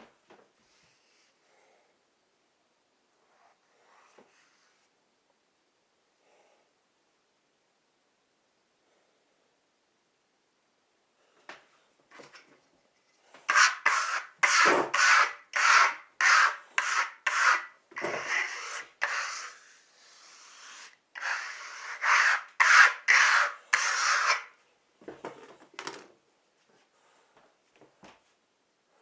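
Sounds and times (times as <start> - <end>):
hand tool rubbing a wall: 13.5 - 24.5.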